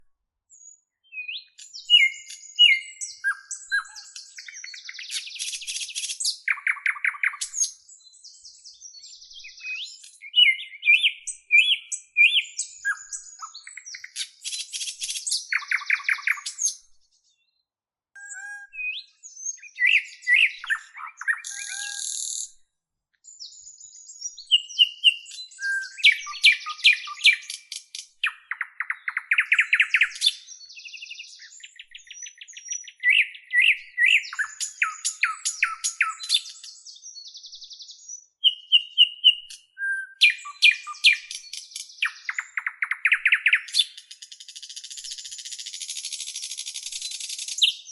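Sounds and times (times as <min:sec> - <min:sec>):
songbirds singing and chirping: 0:00.0 - 0:47.9.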